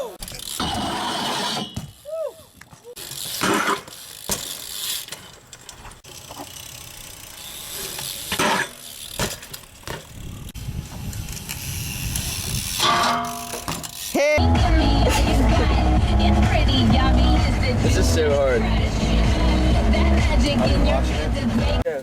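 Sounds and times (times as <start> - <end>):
bike landing clacks: 0.0 - 14.4
bikes rolling on ramps: 0.0 - 22.0
loud music with heavy bass: 14.4 - 17.2.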